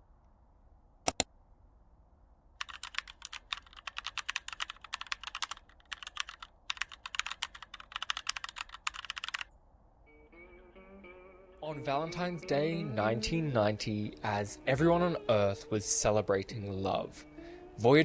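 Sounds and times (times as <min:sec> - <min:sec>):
typing on a keyboard: 0:02.6 - 0:09.5.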